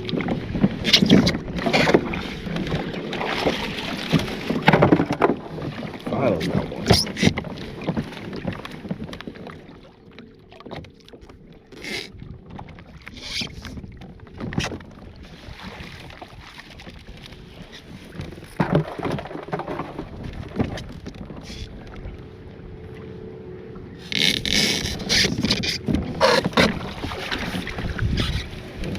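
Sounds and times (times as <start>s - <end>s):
water: 0.0s - 28.9s
knocks against kayak hull: 0.2s - 5.5s, 18.2s - 21.3s
wind on microphone: 23.9s - 28.9s.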